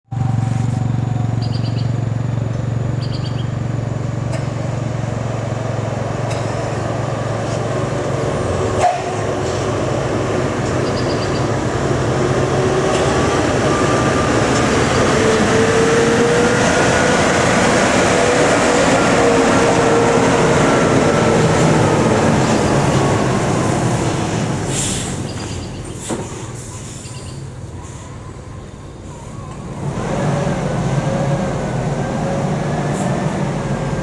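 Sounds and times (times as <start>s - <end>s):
diesel truck engine humming: 0.1s - 34.0s
bird chirping: 1.4s - 2.0s, 3.0s - 3.6s, 10.7s - 11.6s, 25.2s - 26.0s, 26.9s - 28.8s.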